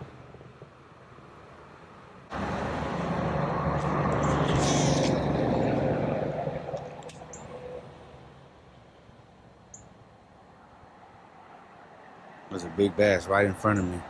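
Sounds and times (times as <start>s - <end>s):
vehicle passing by: 1.8s - 8.5s.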